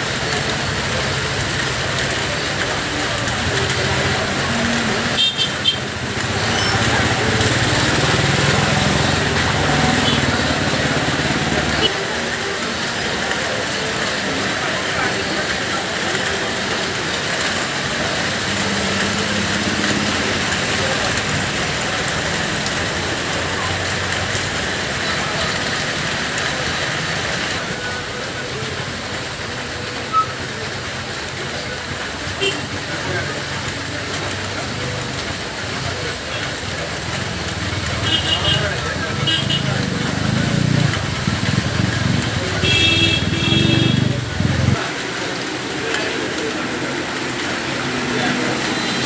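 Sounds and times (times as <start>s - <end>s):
heavy rain hissing: 0.0s - 49.0s
heavy vehicle engine labouring: 0.0s - 49.0s.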